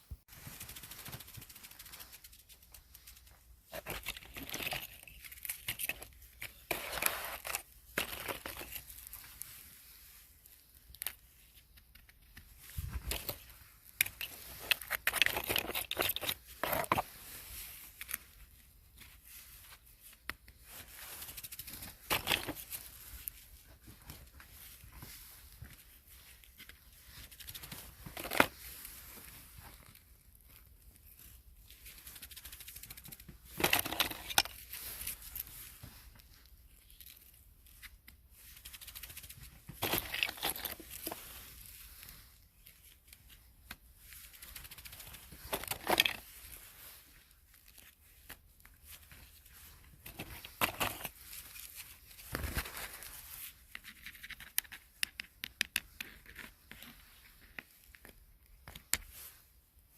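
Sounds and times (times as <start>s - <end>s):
crackling and tearing: 0.4s - 18.4s.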